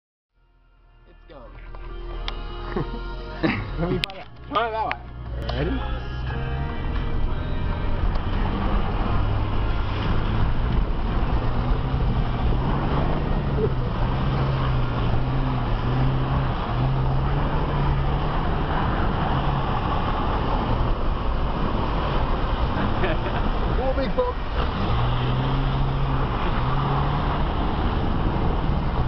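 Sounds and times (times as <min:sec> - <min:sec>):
engine running under load: 0:05.4 - 0:29.0
water splashing against vehicle: 0:06.9 - 0:29.0.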